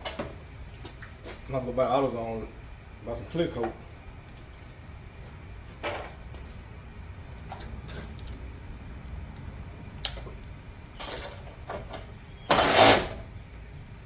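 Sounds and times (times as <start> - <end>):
loud scrape: 12.5 - 13.2.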